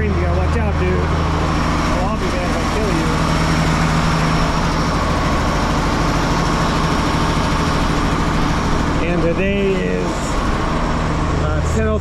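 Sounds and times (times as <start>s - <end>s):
truck diesel engine idling: 0.0s - 12.0s.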